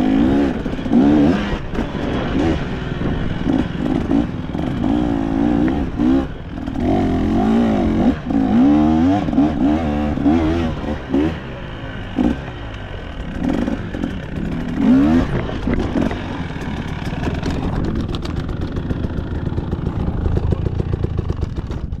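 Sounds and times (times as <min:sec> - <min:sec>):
dirt bike engine revving: 0:00.0 - 0:20.3.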